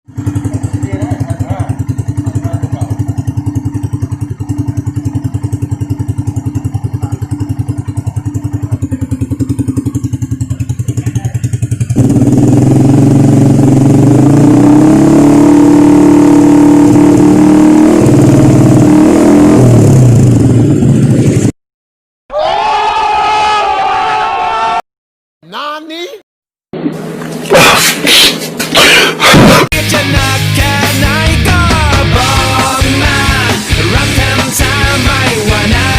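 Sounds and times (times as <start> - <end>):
motorcycle engine idling and revving: 0.1 - 21.6, 26.8 - 27.5, 30.2 - 35.9.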